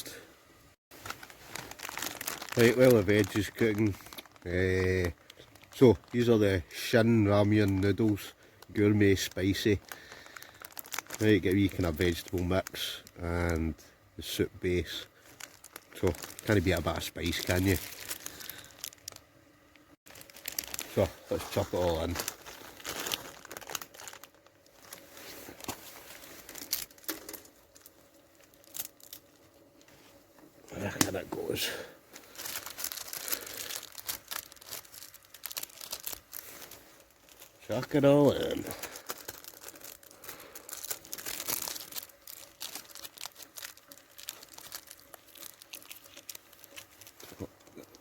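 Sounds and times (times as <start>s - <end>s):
plastic packaging crinkling: 0.9s - 48.0s
packet tearing open: 1.0s - 6.4s, 15.4s - 19.2s, 20.1s - 25.0s, 32.2s - 48.0s.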